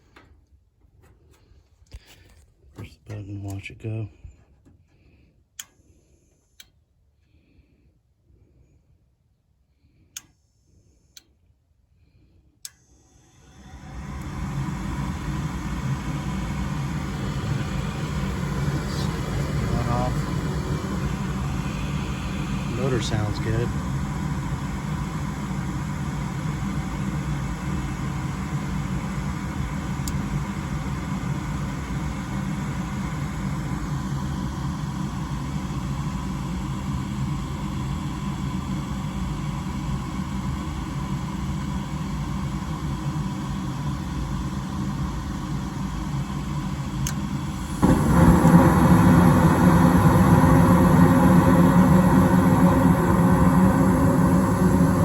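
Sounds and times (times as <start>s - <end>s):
furnace motor hum: 12.6s - 55.0s
furnace burner rumble: 13.1s - 55.0s.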